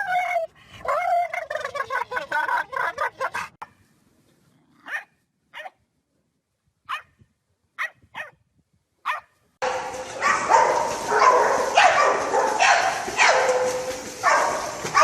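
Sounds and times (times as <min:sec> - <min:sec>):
dog barking: 0:04.8 - 0:05.8, 0:06.9 - 0:07.1, 0:09.0 - 0:15.0.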